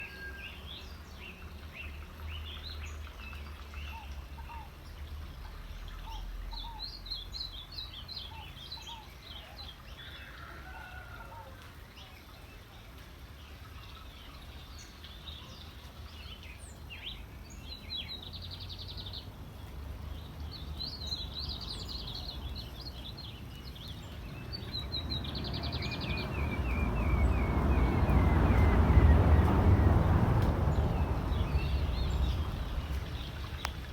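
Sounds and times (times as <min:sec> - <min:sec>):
birds chirping and trilling: 0:20.6 - 0:33.9
broad rush of noise: 0:24.1 - 0:33.9
steady low rumble: 0:24.4 - 0:33.9.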